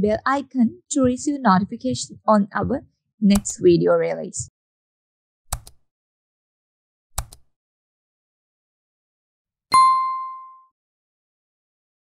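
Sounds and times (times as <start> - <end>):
mouse clicks: 5.5 - 5.8, 7.2 - 7.4
bright chime ding: 9.7 - 10.7.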